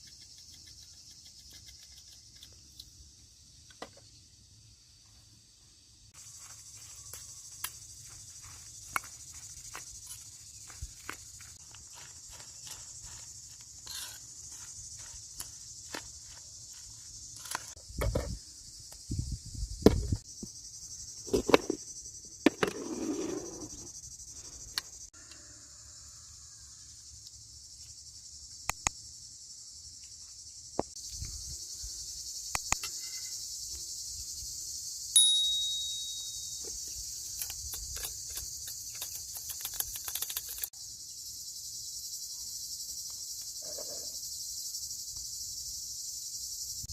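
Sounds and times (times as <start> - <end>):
insects chirring: 0.0 - 46.9
sharp metallic clink: 35.1 - 36.8.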